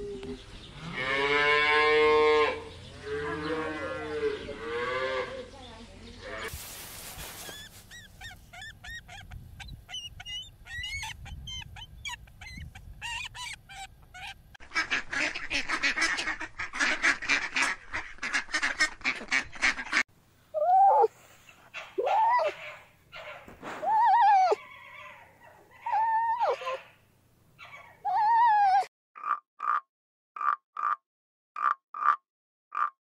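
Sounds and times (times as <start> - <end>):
eagle piping chirps: 7.2 - 14.6
fox whining calls: 7.4 - 14.5, 20.6 - 27.0, 27.6 - 28.9.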